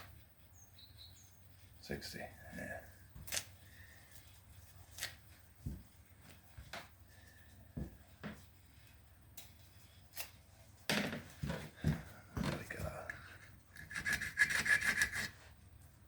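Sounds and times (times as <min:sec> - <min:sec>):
sandpaper rustling: 0:13.9 - 0:15.5.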